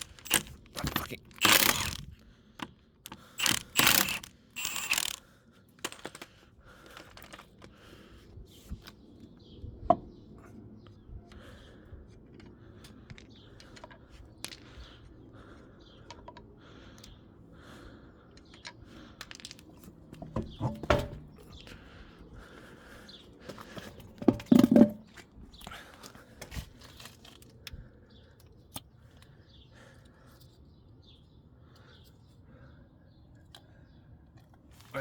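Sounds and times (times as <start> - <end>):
ratchet rasping: 0.0 - 2.1, 3.1 - 5.2, 5.8 - 6.2.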